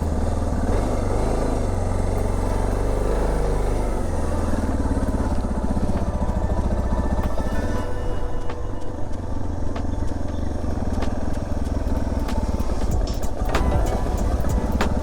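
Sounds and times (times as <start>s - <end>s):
motorcycle engine warming up: 0.0s - 15.0s.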